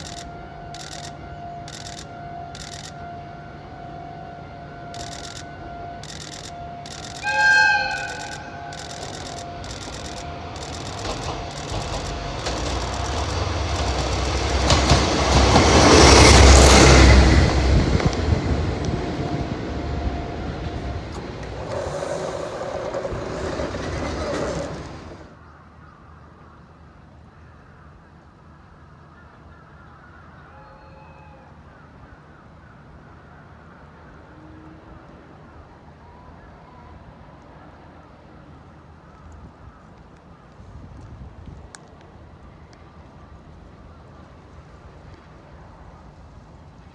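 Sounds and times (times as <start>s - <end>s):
freight train passing: 0.0s - 25.4s.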